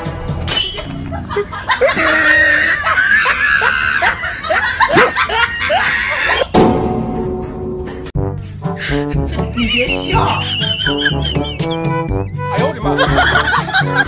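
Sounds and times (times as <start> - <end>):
music: 0.0 - 1.6, 6.6 - 14.0
comic laughter sound effect: 0.9 - 6.5, 8.8 - 14.0.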